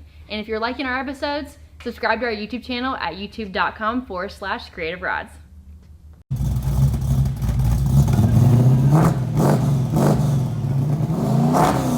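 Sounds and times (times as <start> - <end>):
car engine revving: 6.3 - 11.9.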